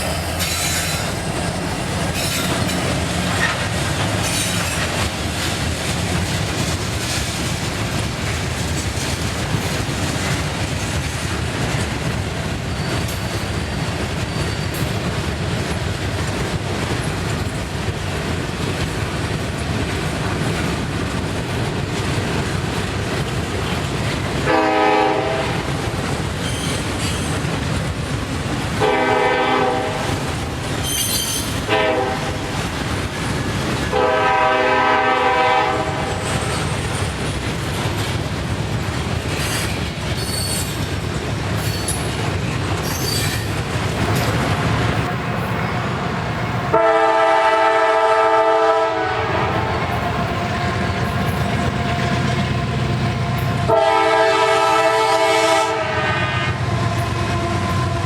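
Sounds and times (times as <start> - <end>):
train rumbling on rails: 0.0 - 58.0
faint high wheel squeals: 12.6 - 15.0, 26.4 - 27.4, 30.8 - 31.6, 39.4 - 40.8, 42.8 - 43.5
train air horn blasts: 24.4 - 25.7, 28.8 - 30.3, 31.4 - 32.5, 33.9 - 36.3, 45.7 - 50.0, 53.3 - 58.0.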